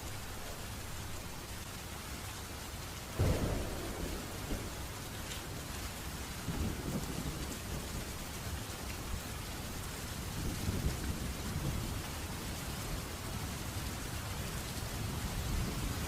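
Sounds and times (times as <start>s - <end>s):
steady rain falling: 0.0s - 16.0s
thunder rumbling: 3.2s - 8.2s.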